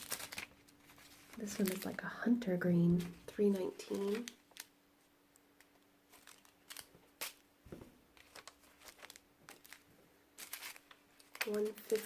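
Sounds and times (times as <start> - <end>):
plastic bags crinkling: 0.0 - 2.1, 3.0 - 4.7, 5.6 - 7.4, 8.1 - 12.0.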